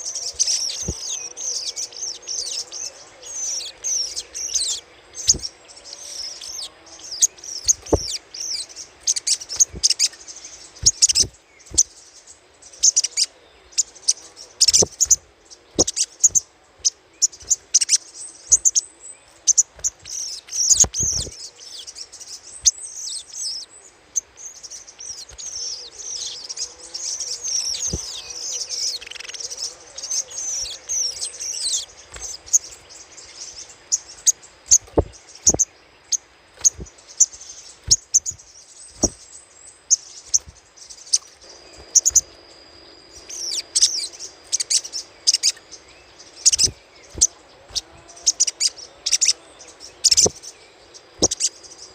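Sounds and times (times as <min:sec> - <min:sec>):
bird chattering call: 0:10.8 - 0:11.9, 0:15.8 - 0:16.4, 0:41.1 - 0:42.3, 0:51.2 - 0:51.6.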